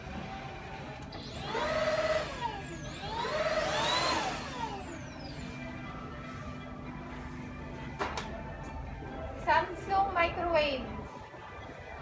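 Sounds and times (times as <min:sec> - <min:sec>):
vacuum cleaner motor whining: 0:00.2 - 0:06.8.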